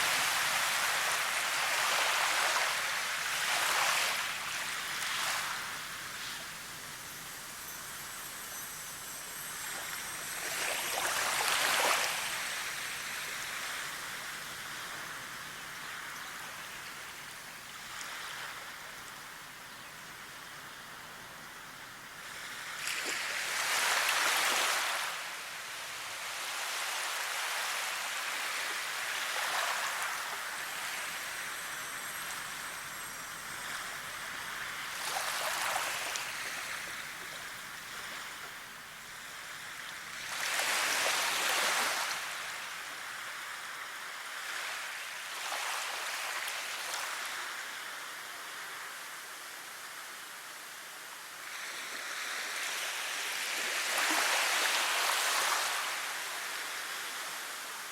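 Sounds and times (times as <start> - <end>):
running water hissing: 4.2 - 14.6, 30.2 - 39.3.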